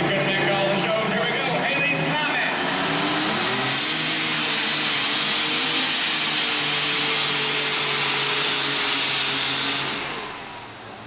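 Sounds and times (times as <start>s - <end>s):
pulling tractor engine drone: 0.0s - 11.0s.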